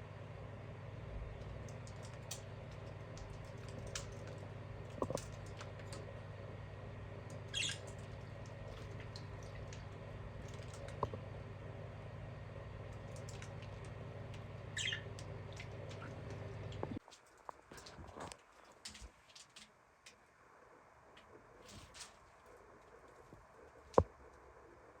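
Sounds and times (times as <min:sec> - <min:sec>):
steady low hum: 0:00.0 - 0:25.0
birds tapping and scratching: 0:01.2 - 0:06.3, 0:07.2 - 0:11.3, 0:12.8 - 0:20.2.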